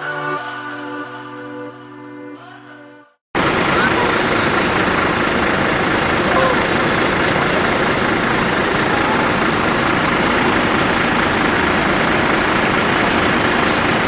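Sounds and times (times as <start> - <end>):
bus engine: 3.4 - 14.0
road noise: 3.4 - 14.0.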